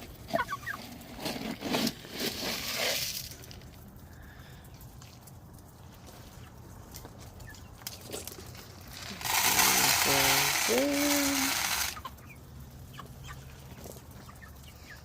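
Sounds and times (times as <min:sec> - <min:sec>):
chickens clucking: 0:00.2 - 0:01.2, 0:03.7 - 0:15.0
loud rustling hiss: 0:08.9 - 0:12.0.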